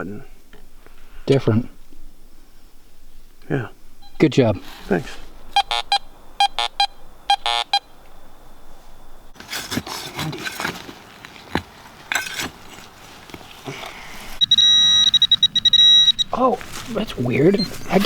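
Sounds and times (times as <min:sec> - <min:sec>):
metal detector beeping: 0:04.0 - 0:04.3, 0:05.5 - 0:07.9, 0:14.4 - 0:16.4
digging in soil: 0:04.6 - 0:05.4, 0:09.3 - 0:18.0
steady high-pitched beep: 0:14.4 - 0:16.3.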